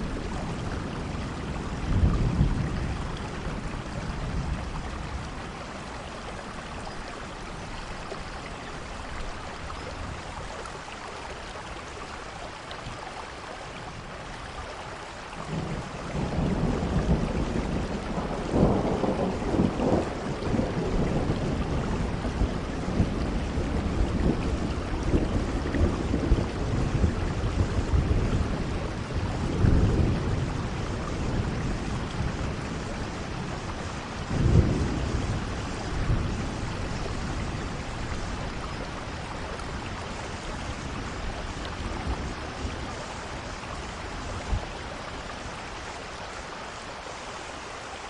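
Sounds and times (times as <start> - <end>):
thunder rumbling: 0.0 - 7.9, 15.4 - 45.6
steady rainfall: 0.0 - 48.0.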